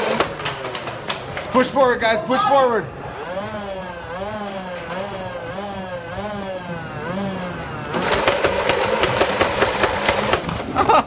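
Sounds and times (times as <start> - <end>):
toy blaster motors whining: 3.0 - 10.7
rapid clatter of sharp hits: 7.9 - 11.0.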